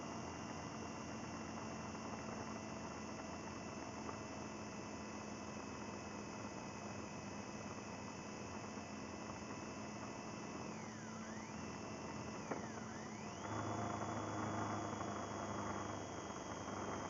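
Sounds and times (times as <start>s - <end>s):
high whine: 10.7s - 17.0s
muffled motorcycle running: 12.5s - 17.0s.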